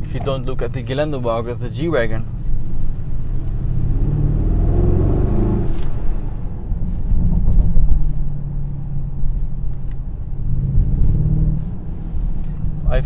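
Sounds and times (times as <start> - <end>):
car engine and exhaust: 0.0 - 13.0.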